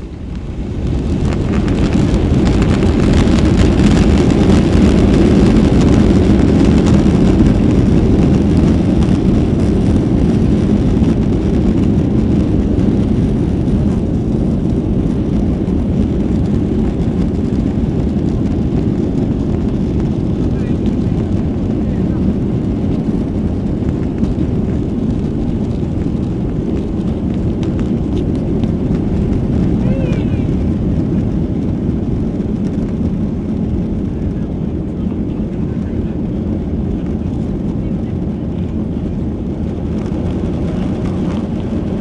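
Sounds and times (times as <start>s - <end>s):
jet engines at takeoff power: 0.0s - 42.0s.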